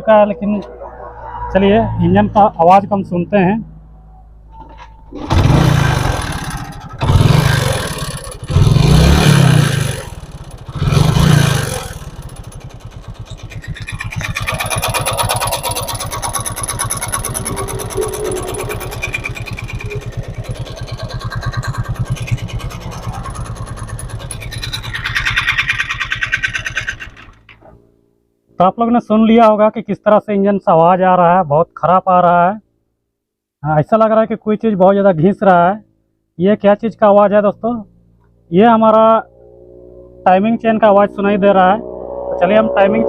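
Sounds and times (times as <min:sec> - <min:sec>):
motorcycle engine kick-starting: 0:04.6 - 0:27.8
motorcycle engine idling: 0:05.0 - 0:27.6.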